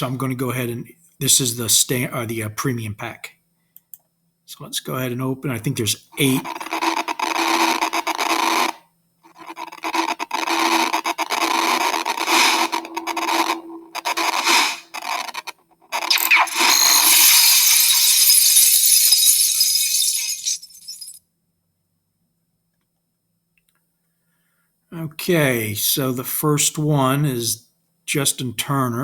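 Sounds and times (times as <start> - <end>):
card pack scraping and rattling: 6.4 - 16.1.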